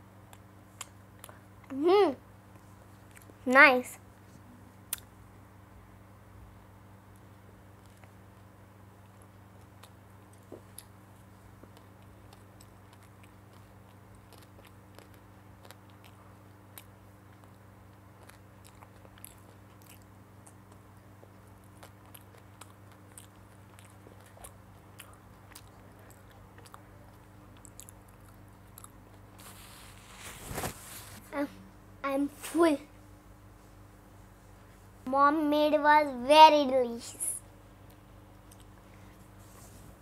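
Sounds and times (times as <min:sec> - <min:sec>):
steady low hum: 0:00.0 - 0:40.0
child chewing bread: 0:02.5 - 0:03.4, 0:07.1 - 0:31.5, 0:37.7 - 0:40.0.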